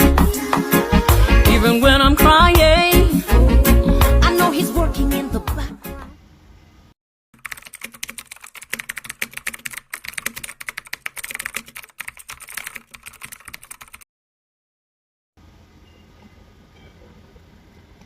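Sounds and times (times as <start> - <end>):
keyboard typing: 7.4 - 14.0.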